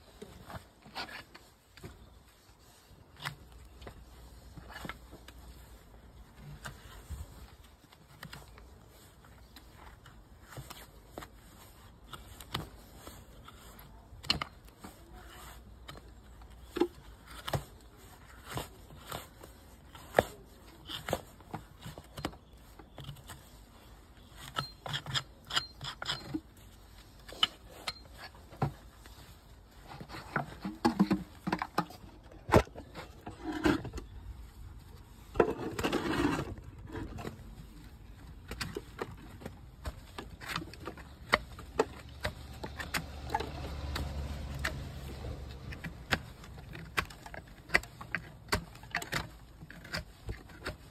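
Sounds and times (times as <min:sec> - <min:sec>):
scraping on hoof: 0:00.2 - 0:50.9
tools clicking and snipping hoof: 0:24.4 - 0:26.6, 0:38.1 - 0:50.9.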